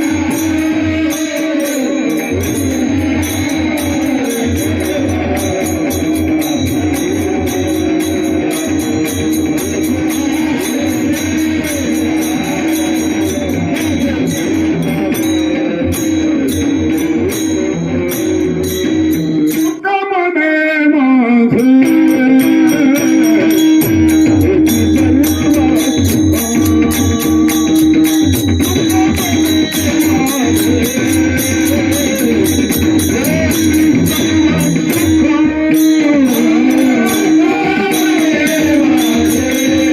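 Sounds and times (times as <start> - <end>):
jingling cymbals: 0.0 - 19.8, 21.6 - 39.9
man singing: 0.0 - 39.9
hand drum beating: 21.8 - 39.9.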